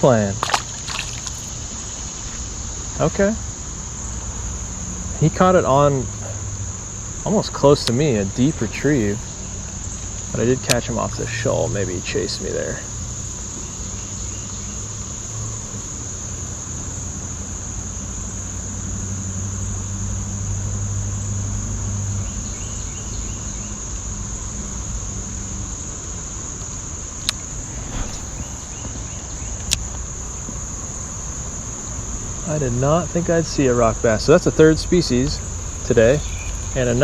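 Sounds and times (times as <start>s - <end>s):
insects trilling: 0.0s - 16.6s, 32.7s - 37.0s
low hum: 27.2s - 30.1s.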